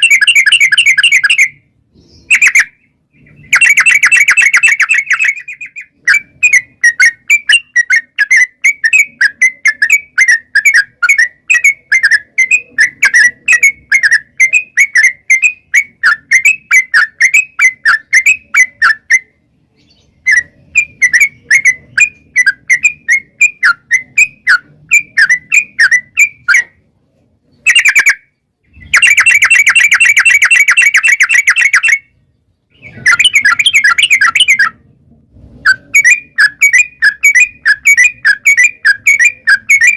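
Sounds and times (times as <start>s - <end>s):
bird bubbling chirps: 27.6s - 34.8s.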